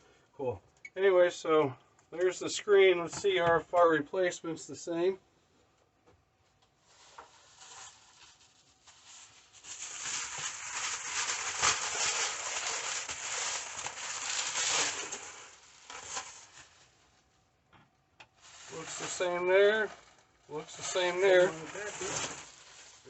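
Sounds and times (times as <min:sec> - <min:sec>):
packaging rustling and crinkling: 0:06.8 - 0:17.2, 0:18.4 - 0:23.0.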